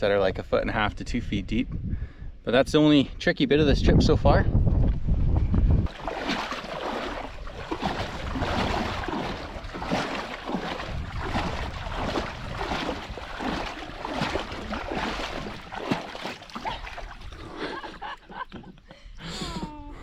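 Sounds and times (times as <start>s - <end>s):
wind buffeting microphone: 0.0s - 17.8s
water splashing around paddles: 5.8s - 18.4s.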